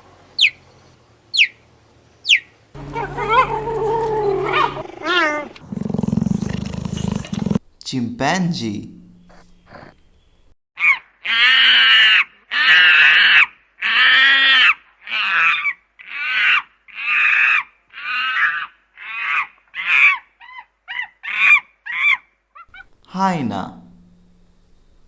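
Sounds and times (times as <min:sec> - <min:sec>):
chimpanzee screaming: 0:02.8 - 0:05.6, 0:10.8 - 0:22.9.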